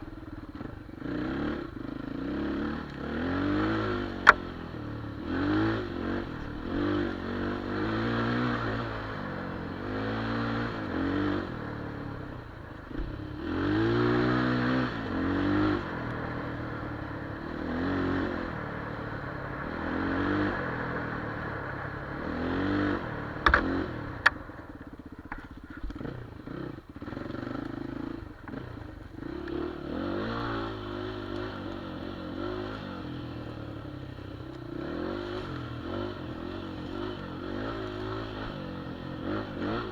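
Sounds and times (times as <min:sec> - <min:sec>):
motorcycle engine revving: 0:00.0 - 0:39.9
sharp knocks: 0:23.4 - 0:24.4.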